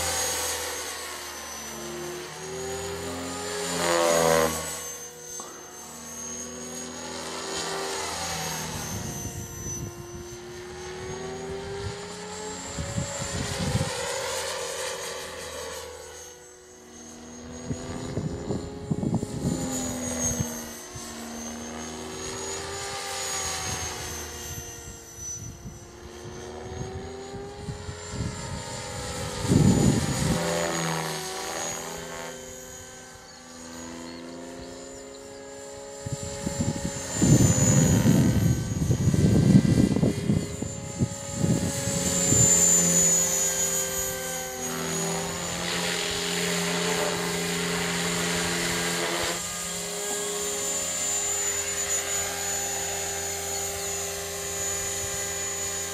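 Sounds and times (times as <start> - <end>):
model helicopter rotor buzz: 0.0 - 55.9
wind buffeting microphone: 36.0 - 42.8.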